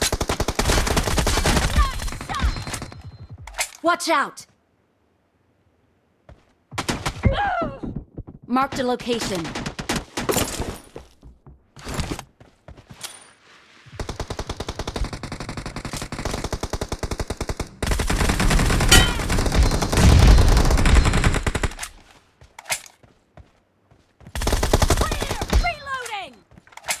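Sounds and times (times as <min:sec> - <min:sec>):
video game automatic gunfire: 0:00.0 - 0:02.9, 0:14.0 - 0:21.8.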